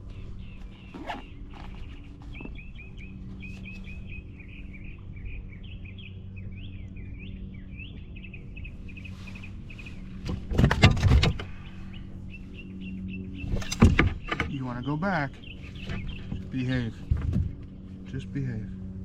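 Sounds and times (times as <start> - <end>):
songbird twittering: 0.0 - 10.2, 11.4 - 17.0
steady low hum: 0.0 - 19.0
knocks and rattles: 10.2 - 11.5, 13.5 - 14.6.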